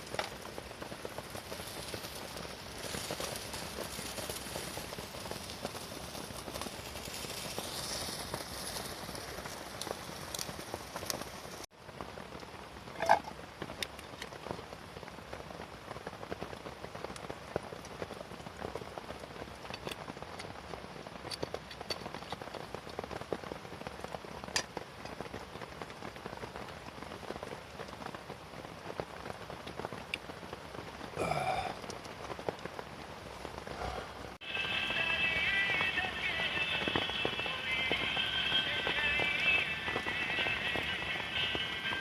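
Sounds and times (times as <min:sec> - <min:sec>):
rain falling on a tent: 0:00.0 - 0:42.0.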